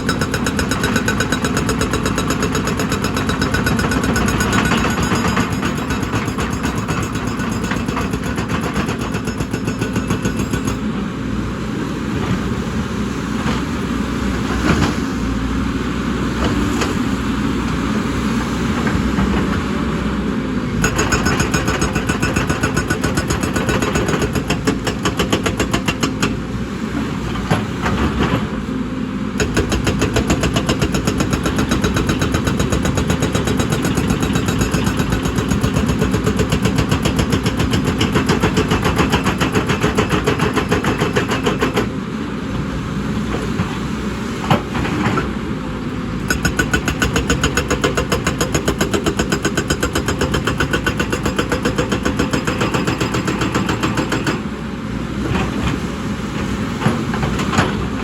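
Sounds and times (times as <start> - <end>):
excavator diesel engine knocking: 0.0 - 10.5.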